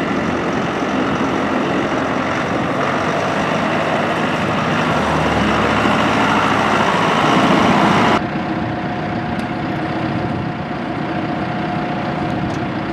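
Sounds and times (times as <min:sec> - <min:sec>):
tractor diesel engine running: 0:00.0 - 0:12.9.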